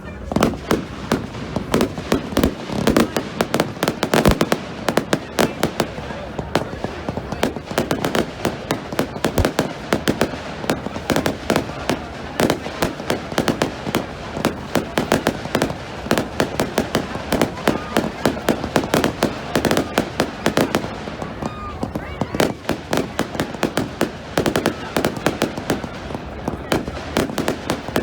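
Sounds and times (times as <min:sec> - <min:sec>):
fireworks cracking and banging: 0:00.0 - 0:28.0.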